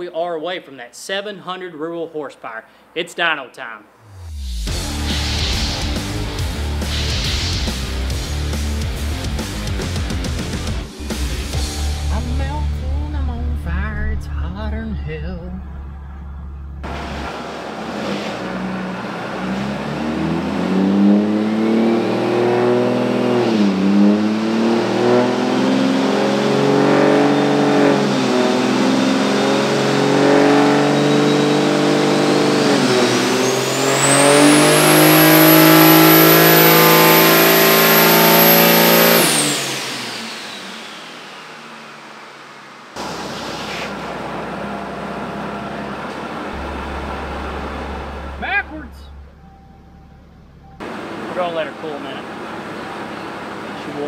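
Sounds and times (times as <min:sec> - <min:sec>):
turbocharger whistling: 0:04.0 - 0:12.5, 0:13.8 - 0:54.0
diesel engine at full throttle: 0:04.0 - 0:54.0.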